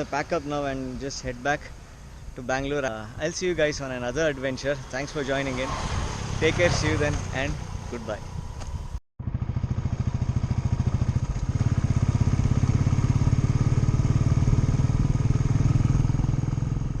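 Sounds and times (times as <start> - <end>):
motorcycle engine running: 5.4 - 17.0.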